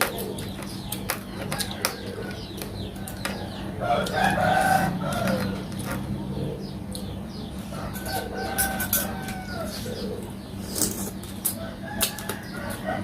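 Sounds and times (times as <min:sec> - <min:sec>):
chickens clucking: 0:00.0 - 0:13.0
steady low hum: 0:00.0 - 0:13.0
rooster crowing: 0:03.0 - 0:05.7, 0:07.7 - 0:10.0.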